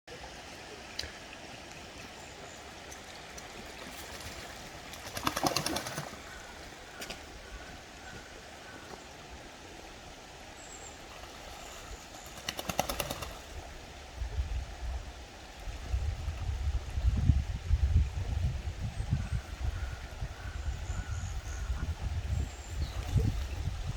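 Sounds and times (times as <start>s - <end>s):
stream noise: 0.1s - 23.9s
duck wings splashing water: 2.9s - 9.0s, 11.1s - 13.7s.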